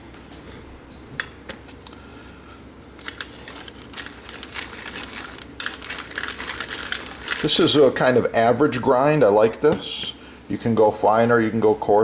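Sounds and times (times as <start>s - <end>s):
pepper mill grinding crackle: 3.0s - 8.0s.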